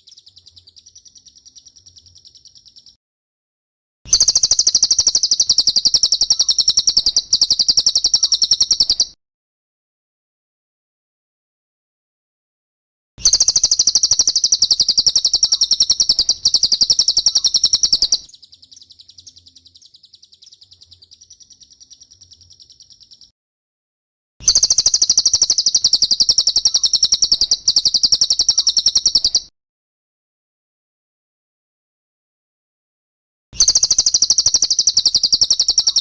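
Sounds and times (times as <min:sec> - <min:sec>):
bird twittering: 0:00.0 - 0:03.0, 0:04.1 - 0:09.2, 0:13.2 - 0:23.3, 0:24.4 - 0:29.5, 0:33.6 - 0:36.0
bird trilling: 0:04.1 - 0:09.2, 0:13.2 - 0:23.3, 0:24.4 - 0:29.5, 0:33.6 - 0:36.0.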